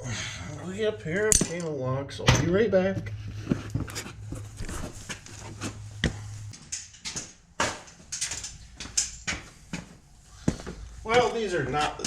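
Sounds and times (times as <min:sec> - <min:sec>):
low steady hum: 0:00.0 - 0:12.0
tools knocking and clinking: 0:01.2 - 0:01.7.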